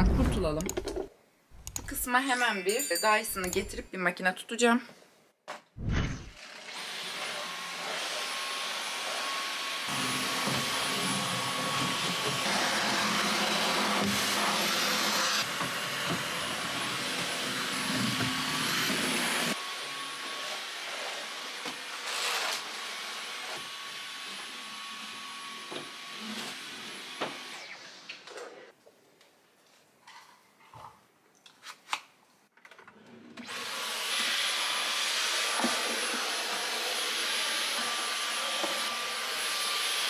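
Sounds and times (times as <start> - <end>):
cordless vacuum running: 6.8 - 27.7, 33.4 - 40.0.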